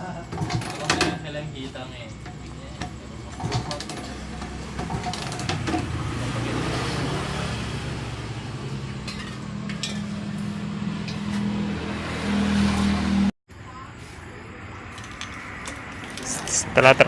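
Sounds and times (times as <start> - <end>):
steady engine hum: 0.0 - 17.0
metal tools clinking: 9.0 - 10.3.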